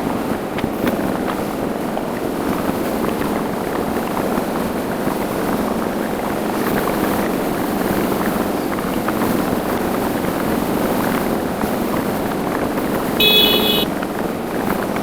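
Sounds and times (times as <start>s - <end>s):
road and wind noise: 0.0s - 15.0s
motorcycle engine running: 8.4s - 15.0s.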